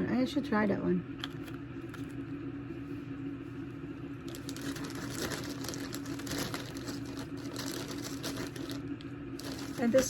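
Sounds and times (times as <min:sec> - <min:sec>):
steady low hum: 0:00.0 - 0:10.0
packaging rustling and crinkling: 0:04.3 - 0:10.0.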